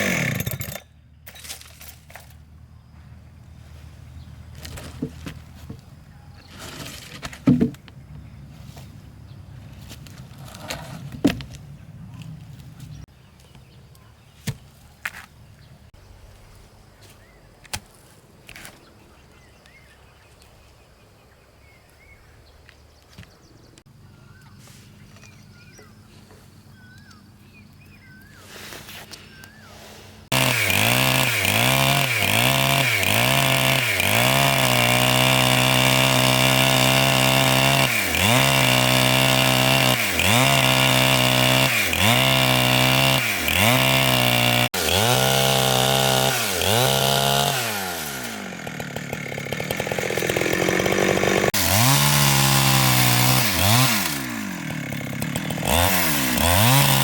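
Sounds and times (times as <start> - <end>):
chainsaw engine revving: 0.0 - 2.3, 30.2 - 57.0.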